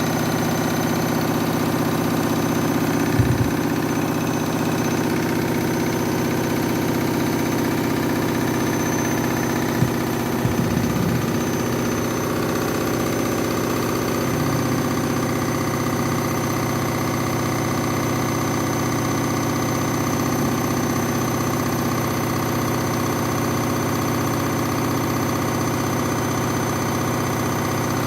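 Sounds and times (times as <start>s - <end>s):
washing machine spinning unbalanced: 2.1s - 5.8s, 7.6s - 15.6s.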